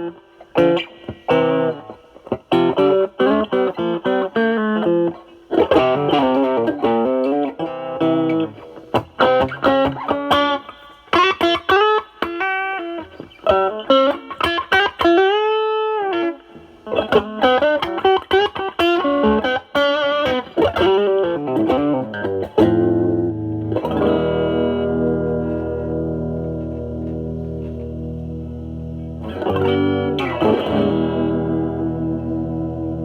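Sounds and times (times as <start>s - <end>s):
overdriven electric guitar lead: 0.0s - 33.0s
guitar chord ringing: 20.8s - 33.0s.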